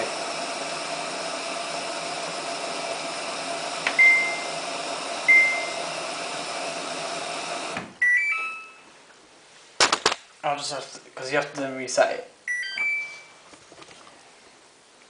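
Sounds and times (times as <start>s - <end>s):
washing machine hum: 0.0s - 8.0s
washing machine switch-off tune: 0.0s - 8.4s
washing machine button beeps: 3.9s - 4.5s, 5.3s - 5.8s, 8.0s - 8.8s, 12.5s - 13.3s.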